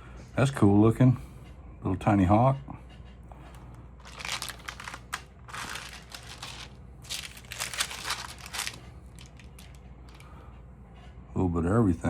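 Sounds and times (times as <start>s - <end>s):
stamps crinkling rustle: 4.0s - 10.2s.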